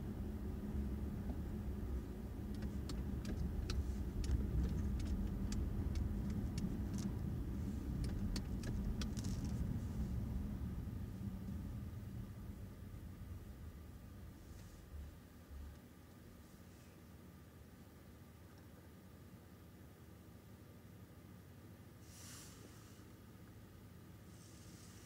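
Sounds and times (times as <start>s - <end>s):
car rumble on the move: 0.0s - 16.9s.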